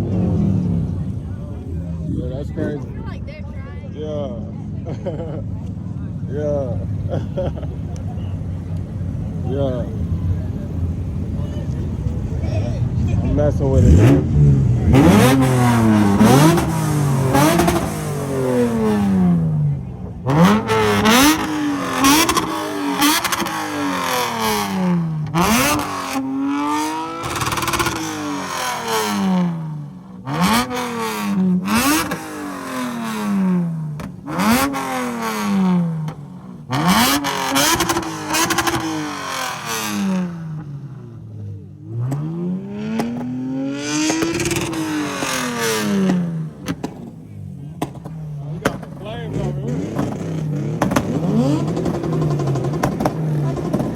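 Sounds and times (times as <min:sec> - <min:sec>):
car engine revving: 0:00.0 - 0:03.4, 0:05.5 - 0:53.9.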